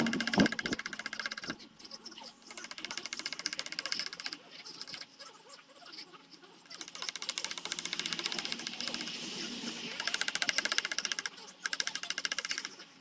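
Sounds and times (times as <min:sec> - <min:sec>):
small power tool ticking: 0:00.0 - 0:01.6, 0:02.5 - 0:05.0, 0:06.8 - 0:09.2, 0:10.0 - 0:12.8.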